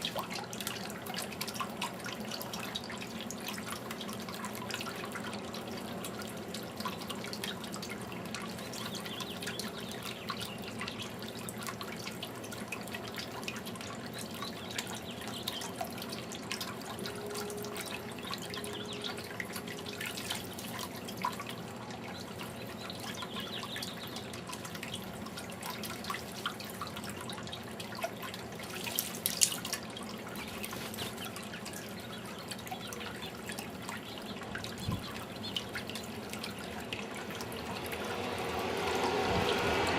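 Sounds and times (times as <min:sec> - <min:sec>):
fountain water trickling: 0:00.0 - 0:39.9
water splash: 0:35.7 - 0:39.9.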